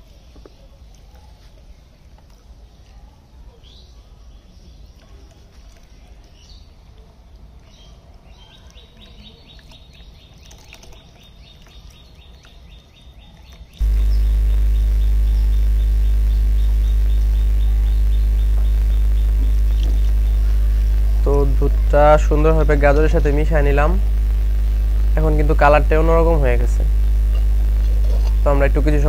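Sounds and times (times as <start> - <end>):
birds chirping: 13.8 - 29.0.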